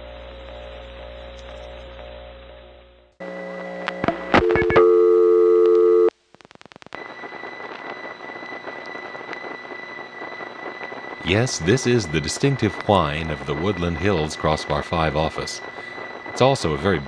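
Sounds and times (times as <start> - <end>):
steady high whine: 0.0 - 17.0
faint pitter-patter of clicks: 1.3 - 2.1
dial pulses: 3.8 - 6.1
dial tone: 3.9 - 6.1
telephone line clicks: 3.9 - 6.1
payphone picked up: 4.4 - 6.1.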